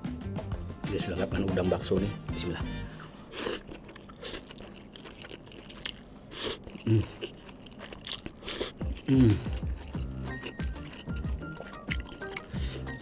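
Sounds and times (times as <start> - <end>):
chewing noodles close-up: 3.3 - 13.0
wet mouth sounds: 3.3 - 13.0.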